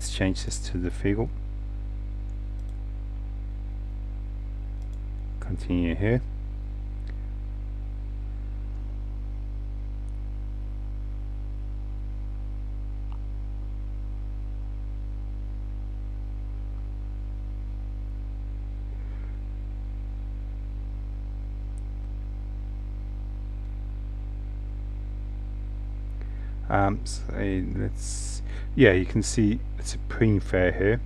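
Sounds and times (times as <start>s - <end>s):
low electrical hum: 0.0s - 31.0s
faint ticks: 4.8s - 5.3s.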